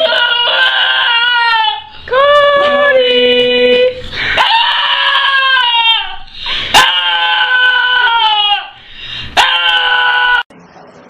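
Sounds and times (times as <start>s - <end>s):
dog howling: 0.0s - 1.9s, 4.4s - 8.8s, 9.4s - 10.5s.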